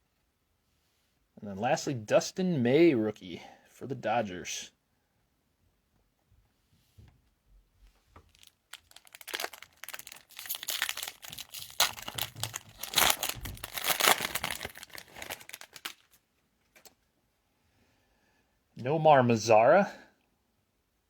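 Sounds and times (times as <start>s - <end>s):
foil wrapper crinkling: 8.3s - 16.9s.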